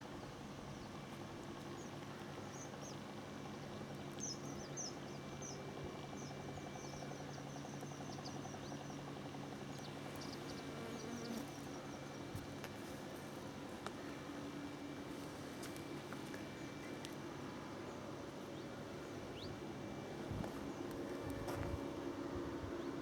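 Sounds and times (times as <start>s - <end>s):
steady low hum: 0.0s - 23.0s
small birds chirping: 0.2s - 14.3s, 15.4s - 19.7s.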